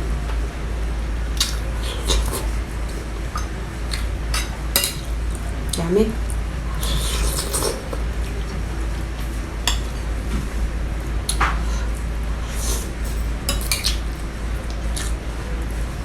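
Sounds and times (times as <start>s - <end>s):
eating noises: 1.4s - 8.6s, 13.6s - 15.8s.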